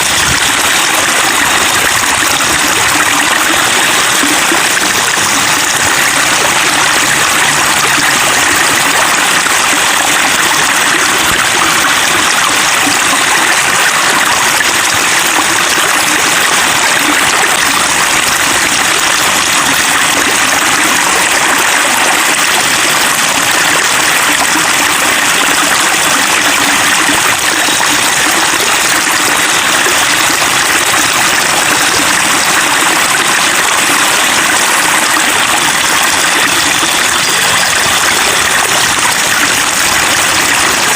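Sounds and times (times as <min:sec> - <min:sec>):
running water babbling: 0:00.0 - 0:40.9.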